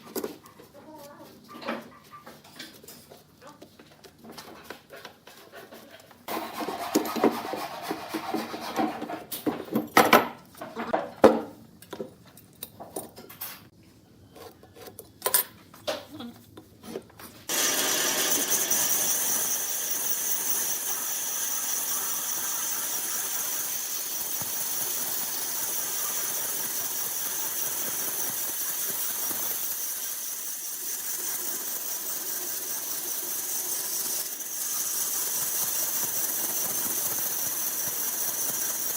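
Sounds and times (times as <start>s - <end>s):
wood knocking and clattering: 8.8s - 11.6s
power tool whining: 17.5s - 38.9s.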